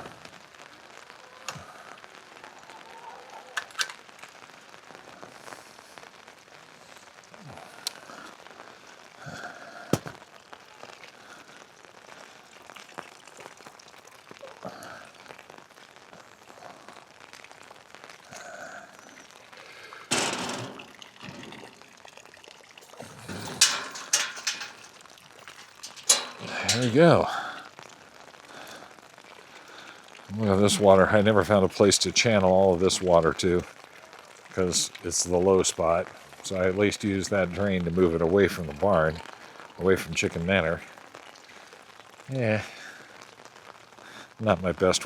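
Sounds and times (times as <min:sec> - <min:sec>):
rain pattering: 0:00.0 - 0:45.0
rush of water: 0:00.0 - 0:45.0
water drips: 0:07.0 - 0:45.0
small knocks: 0:09.9 - 0:10.2.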